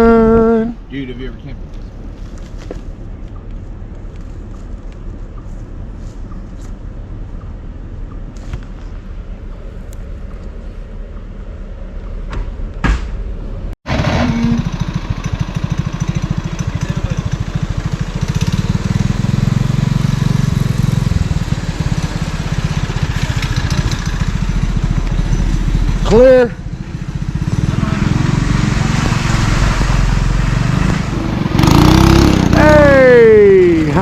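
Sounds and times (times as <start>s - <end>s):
mini bike engine running: 13.9s - 26.3s, 27.0s - 33.1s.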